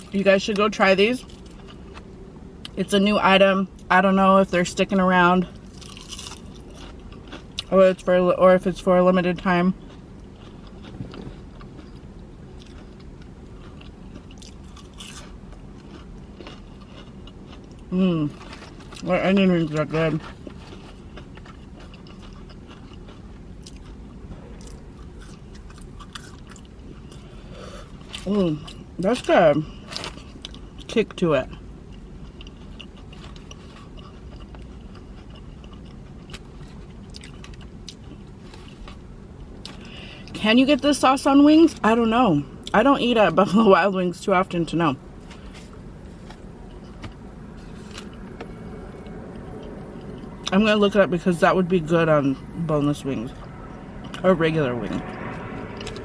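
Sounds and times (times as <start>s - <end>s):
low background rumble: 0.0s - 56.0s
person chewing food: 5.5s - 7.7s, 9.7s - 19.1s, 20.0s - 28.8s, 29.8s - 30.9s, 31.5s - 40.3s, 45.0s - 50.6s, 54.9s - 56.0s.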